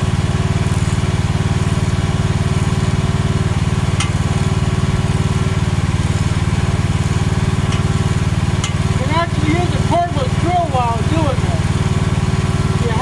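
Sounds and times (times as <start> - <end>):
mini excavator engine running: 0.0 - 13.0.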